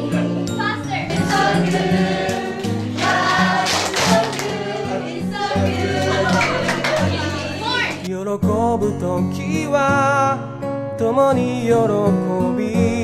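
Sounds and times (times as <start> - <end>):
choir singing: 0.0 - 8.1.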